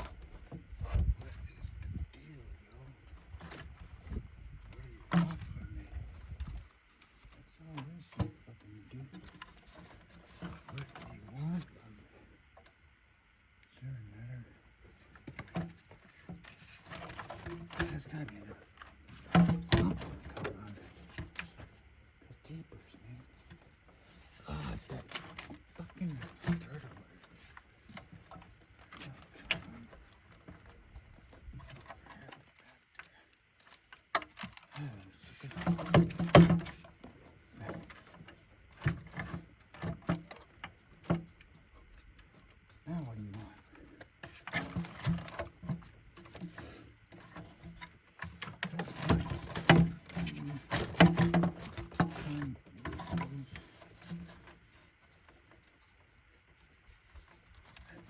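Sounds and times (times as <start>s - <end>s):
rustling of parts: 14.7s - 58.0s
hand tools clicking and knocking: 35.4s - 42.4s, 43.5s - 55.5s.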